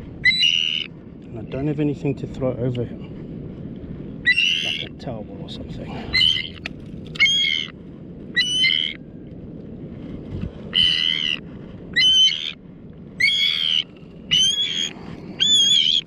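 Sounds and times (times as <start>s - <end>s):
bird calling: 0.2s - 0.9s, 4.3s - 4.9s, 6.1s - 7.7s, 8.4s - 9.0s, 10.7s - 11.4s, 12.0s - 12.6s, 13.2s - 16.0s.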